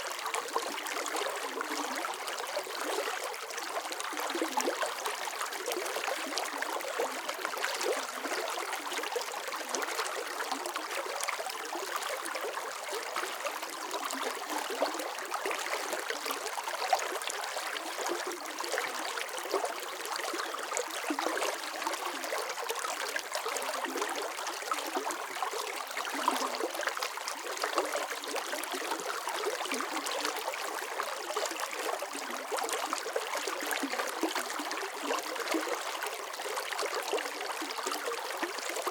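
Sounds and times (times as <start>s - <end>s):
stream flowing and trickling: 0.0s - 38.9s.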